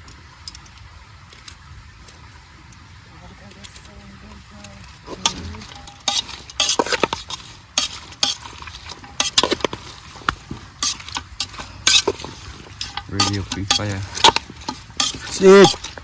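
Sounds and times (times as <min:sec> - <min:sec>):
faint sizzling food: 0:00.0 - 0:16.0
metal spoon scraping in pot: 0:04.9 - 0:16.0
spoon clinking against pot: 0:05.2 - 0:16.0.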